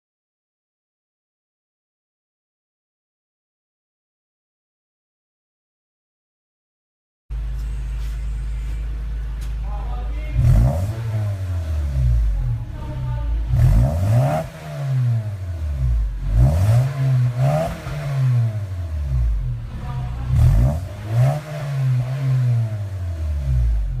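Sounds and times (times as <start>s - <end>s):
car engine revving: 7.4s - 24.0s.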